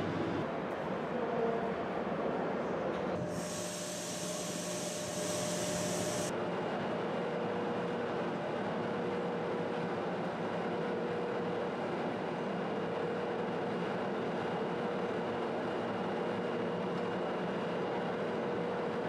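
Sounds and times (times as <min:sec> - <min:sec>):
train humming: 0:00.0 - 0:06.3
high hiss: 0:03.2 - 0:06.3.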